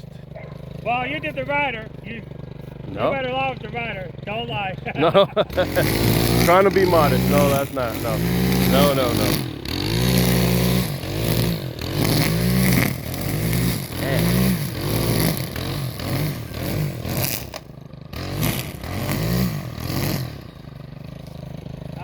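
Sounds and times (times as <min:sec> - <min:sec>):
small engine revving: 0:00.0 - 0:22.0.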